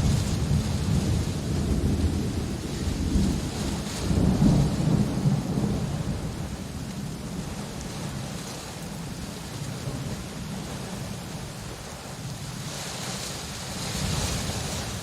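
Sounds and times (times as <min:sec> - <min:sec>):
rain hissing: 0:00.0 - 0:07.4
thunder rumbling: 0:00.0 - 0:08.1.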